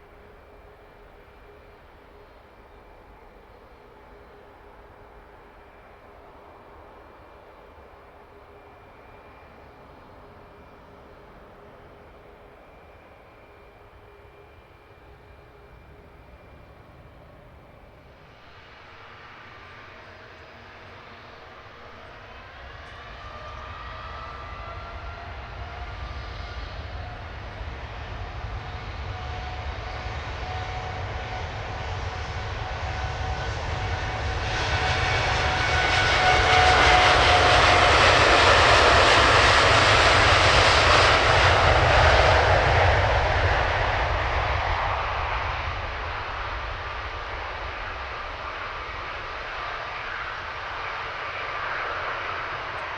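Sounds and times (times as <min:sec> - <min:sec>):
jet engines roaring: 0:13.6 - 0:52.9.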